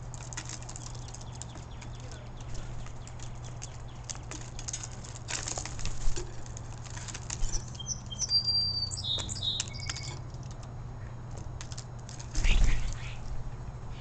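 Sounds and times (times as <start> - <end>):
clicks and rustles: 0.0 - 8.2, 9.2 - 13.4
starlings whistling: 7.4 - 10.2.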